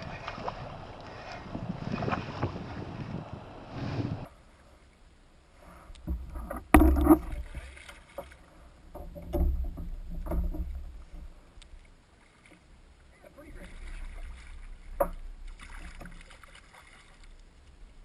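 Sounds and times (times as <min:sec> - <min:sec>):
water moving: 0:00.0 - 0:18.0
knocks on a kayak: 0:06.1 - 0:07.4.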